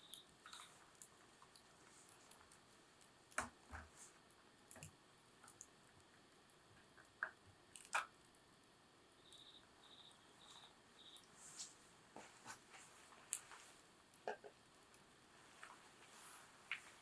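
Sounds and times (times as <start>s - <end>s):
wood fire crackling and popping: 0.0s - 11.3s, 12.5s - 17.0s.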